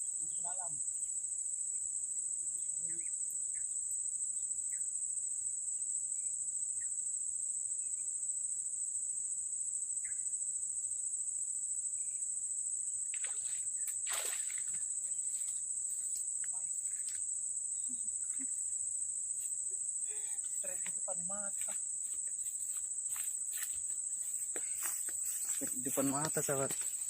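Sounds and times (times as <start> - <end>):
crickets trilling: 0.0 - 27.0
faint chirps: 19.7 - 20.9.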